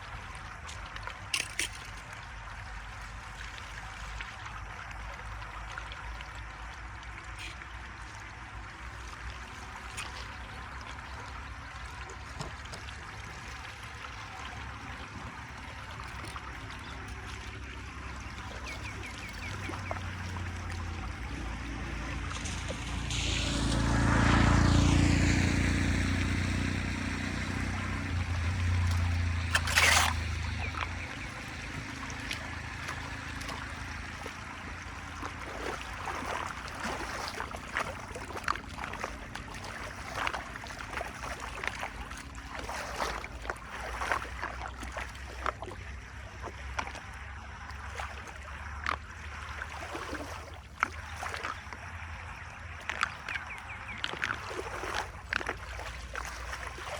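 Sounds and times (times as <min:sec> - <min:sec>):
draining water gurgling: 0:00.0 - 0:56.9
small water splashes: 0:00.0 - 0:56.9
sharp splash or knock: 0:22.0 - 0:34.4, 0:35.1 - 0:41.8.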